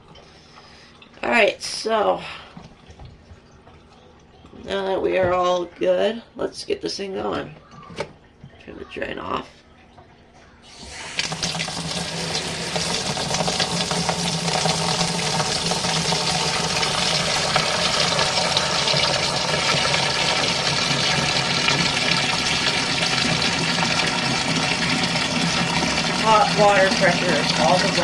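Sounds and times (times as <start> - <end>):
water running from tap into tub: 10.6 - 28.0.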